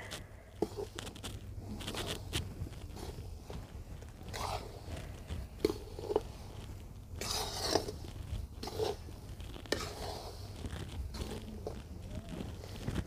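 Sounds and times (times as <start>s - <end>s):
metal spatula scraping a pan: 4.3s - 5.0s, 5.6s - 13.0s.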